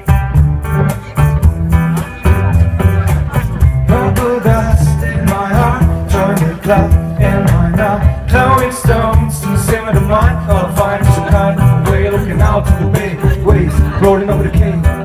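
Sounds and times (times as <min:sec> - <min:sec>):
plucked guitar: 0:00.0 - 0:15.0
steady bass line: 0:00.0 - 0:15.0
person singing: 0:03.6 - 0:15.0.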